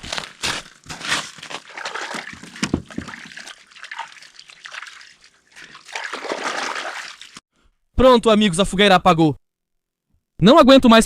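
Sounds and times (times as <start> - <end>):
rustling and scraping handling: 0.0 - 5.4
water splashing and sloshing: 0.1 - 7.4.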